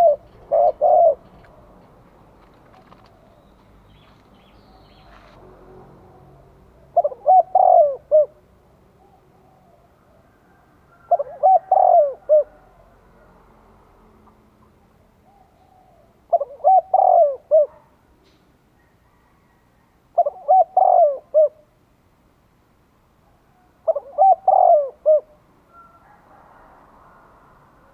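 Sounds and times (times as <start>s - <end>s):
dove cooing: 0.0s - 3.5s, 6.0s - 13.3s, 14.6s - 17.9s, 18.8s - 21.7s, 23.6s - 27.4s.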